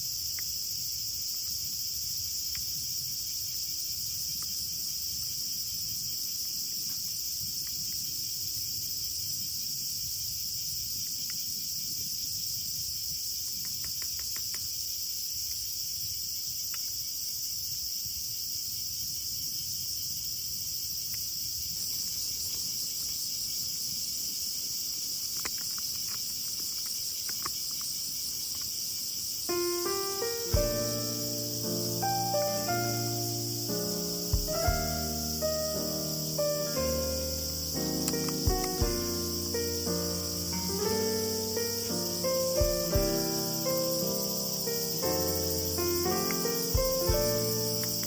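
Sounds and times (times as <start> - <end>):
insect chorus chirring: 0.0 - 48.0
faint clicks: 25.3 - 28.7.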